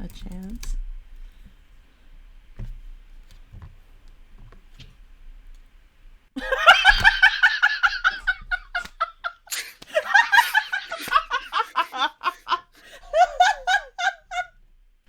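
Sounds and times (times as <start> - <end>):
person laughing hard: 6.4 - 14.5.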